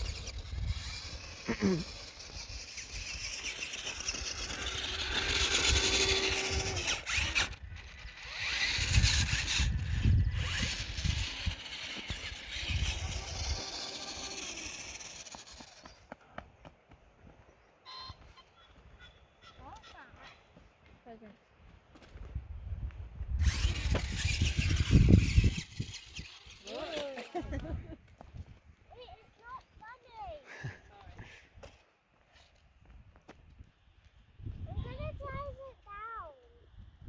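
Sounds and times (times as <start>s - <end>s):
electric motor whining: 0.0s - 16.0s, 23.3s - 27.6s.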